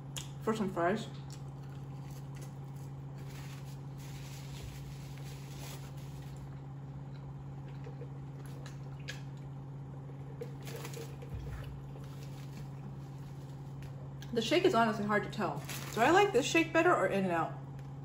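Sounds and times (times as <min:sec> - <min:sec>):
steady low hum: 0:00.0 - 0:18.0
faint chewing of fries: 0:01.0 - 0:14.4.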